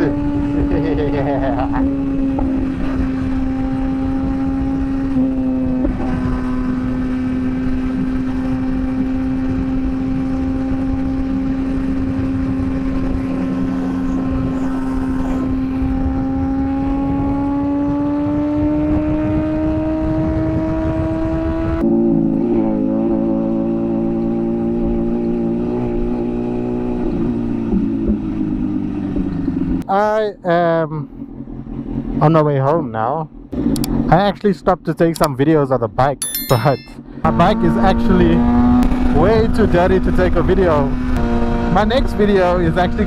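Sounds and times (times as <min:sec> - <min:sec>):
motorcycle engine running: 0:00.0 - 0:17.9
wind and road noise: 0:00.0 - 0:29.9, 0:31.1 - 0:36.2, 0:36.9 - 0:43.0.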